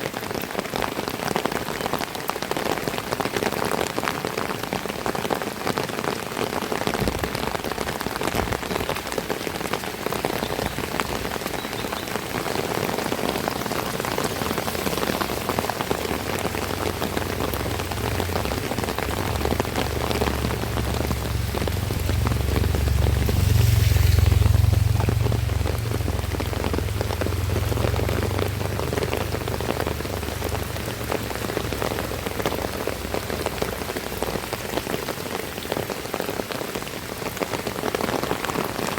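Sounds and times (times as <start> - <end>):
heavy rain falling: 0.0 - 38.9
low rumble: 14.0 - 32.0.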